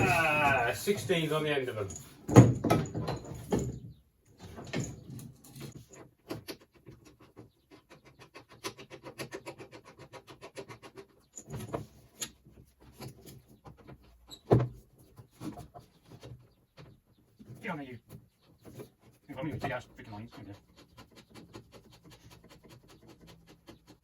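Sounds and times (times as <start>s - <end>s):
scraping rustle: 0.0s - 3.8s.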